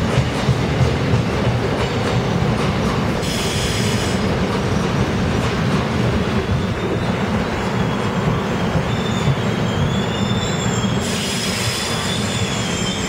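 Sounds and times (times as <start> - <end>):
electric train rolling past: 0.0 - 13.0
high wheel squeal: 6.5 - 13.0.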